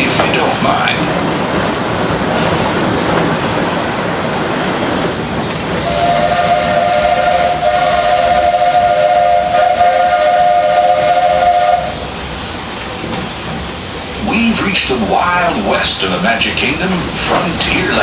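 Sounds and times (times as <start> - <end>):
steam train hiss and running: 0.0 - 18.0
steam locomotive whistle: 5.8 - 12.0.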